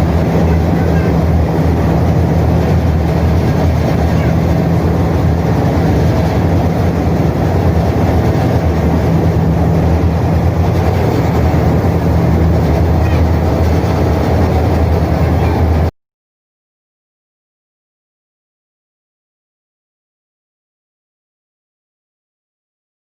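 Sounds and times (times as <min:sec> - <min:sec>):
ferry diesel engines droning: 0:00.0 - 0:15.9
water churned by propellers: 0:00.0 - 0:15.9.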